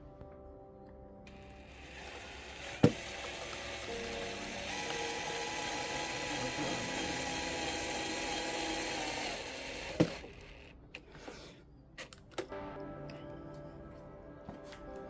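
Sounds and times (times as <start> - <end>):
cordless drill driving a screw: 1.3 - 10.7.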